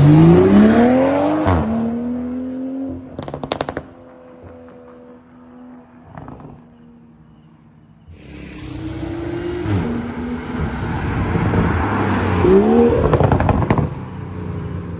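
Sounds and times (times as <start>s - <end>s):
car exhaust accelerating: 8.2s - 14.8s.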